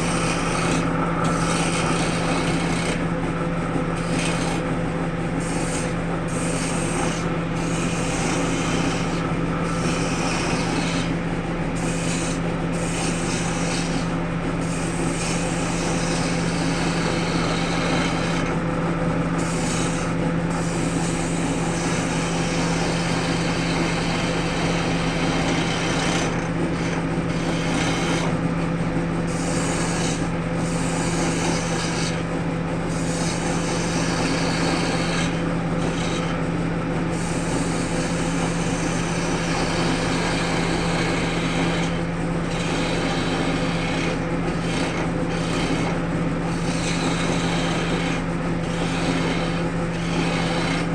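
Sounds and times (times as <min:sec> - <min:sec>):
tool scraping spinning wood: 0:00.0 - 0:50.9
wood lathe motor hum: 0:00.0 - 0:50.9.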